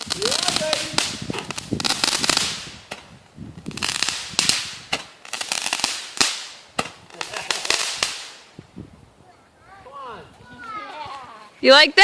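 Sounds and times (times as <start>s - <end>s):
fireworks crackling and banging: 0.0s - 8.7s.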